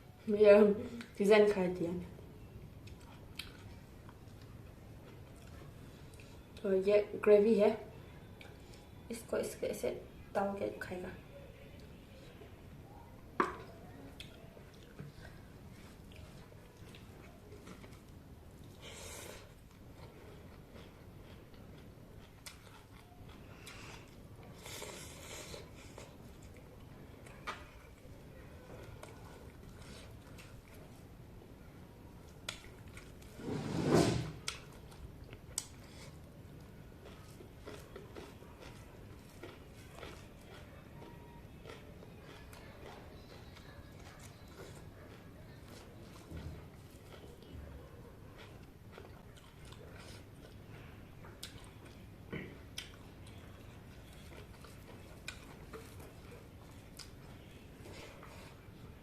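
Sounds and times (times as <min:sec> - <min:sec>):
mouth and chewing clicks: 0:02.8 - 0:06.4, 0:19.5 - 0:28.1, 0:34.5 - 0:47.6, 0:48.2 - 0:58.6.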